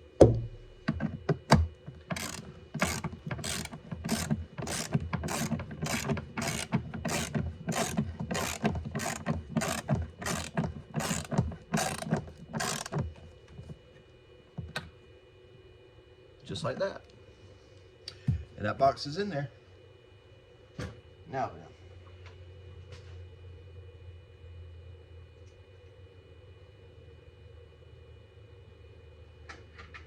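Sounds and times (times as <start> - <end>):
knocks on box lid: 0.2 - 0.7
hand ratchet clicking: 1.5 - 13.1.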